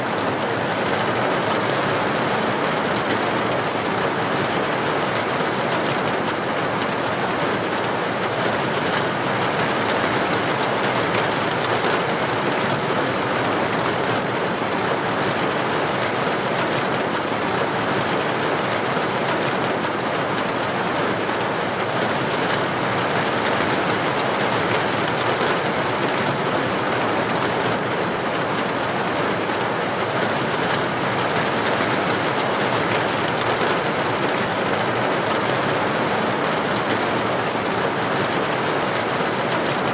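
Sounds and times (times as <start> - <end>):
heavy rain on a street: 0.0 - 39.9.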